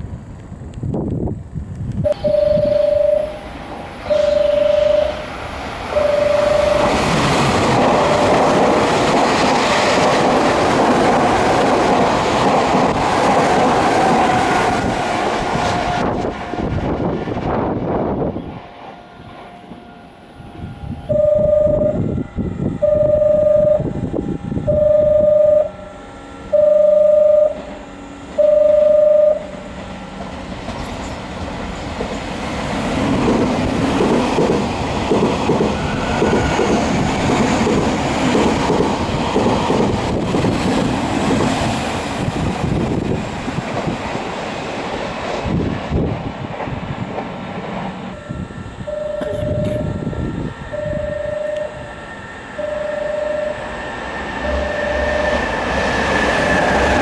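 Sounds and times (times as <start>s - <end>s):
electric train passing: 0.0s - 57.0s
loud beeps: 2.1s - 5.3s, 5.9s - 7.1s, 8.0s - 8.5s, 21.1s - 22.0s, 22.8s - 23.9s, 24.7s - 25.8s, 26.5s - 27.6s, 28.4s - 29.5s, 48.2s - 51.9s, 52.6s - 55.6s.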